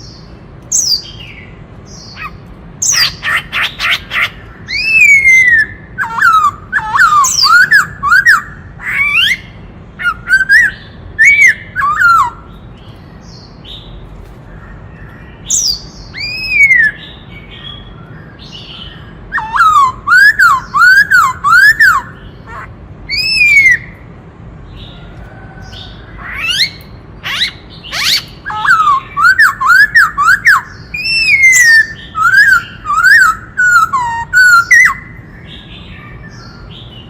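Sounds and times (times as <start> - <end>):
bird singing whistled phrases: 4.2 - 12.5, 15.5 - 17.9, 19.3 - 24.0, 26.4 - 35.2.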